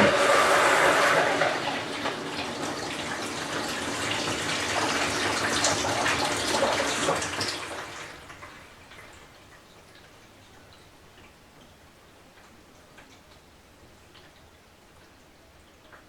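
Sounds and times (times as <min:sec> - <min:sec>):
washing machine water sloshing: 0:00.0 - 0:09.2.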